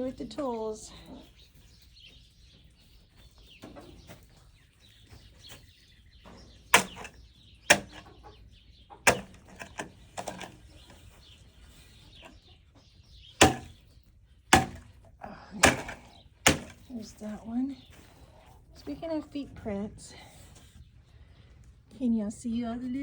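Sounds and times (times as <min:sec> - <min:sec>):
chickens clucking: 0:00.0 - 0:19.8
hand tool chopping knocks: 0:06.8 - 0:08.0, 0:09.1 - 0:10.5, 0:13.4 - 0:13.8, 0:14.5 - 0:14.9, 0:15.6 - 0:16.9.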